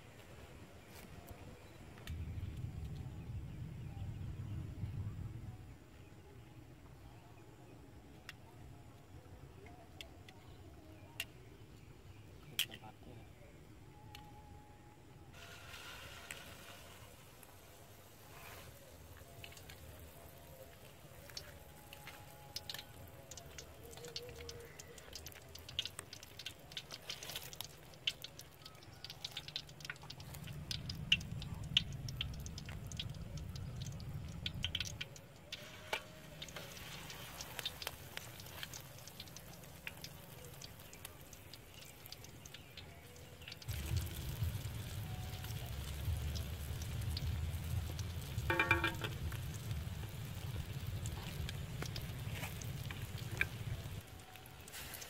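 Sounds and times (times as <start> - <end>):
onion rings frying in hot oil: 15.4 - 55.0
crackling and spitting pops: 21.2 - 55.0
low rumble: 43.7 - 54.0.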